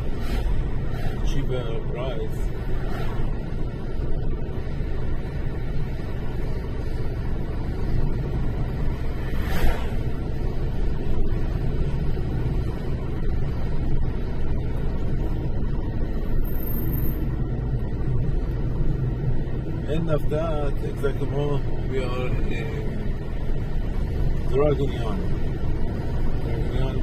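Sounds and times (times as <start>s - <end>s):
car engine and tyres rumbling: 0.0s - 27.0s
short swish: 9.3s - 10.1s.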